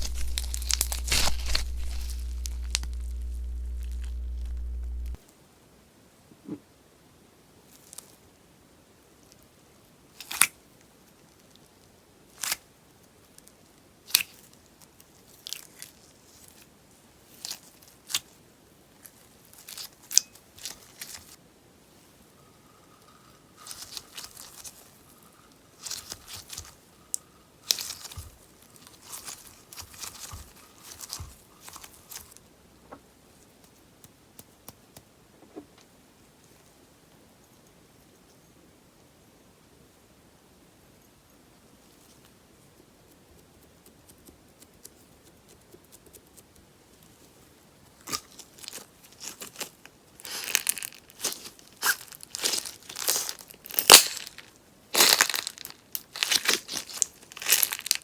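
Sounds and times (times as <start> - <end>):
slime popping and crackling: 0.0 - 5.2.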